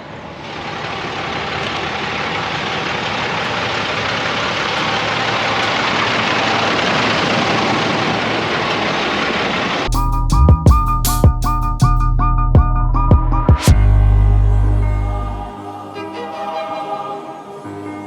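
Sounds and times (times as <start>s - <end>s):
steady rushing noise: 0.0s - 10.0s
truck engine drone: 0.0s - 15.8s.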